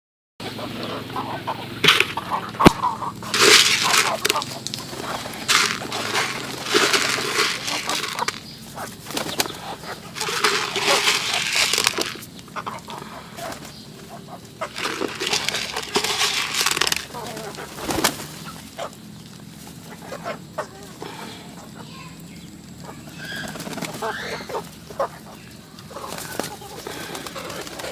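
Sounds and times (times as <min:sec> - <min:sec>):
sharp crack: 0:01.8 - 0:08.4
pigeons rustling and flapping: 0:01.8 - 0:20.4, 0:22.9 - 0:25.2, 0:25.8 - 0:27.9.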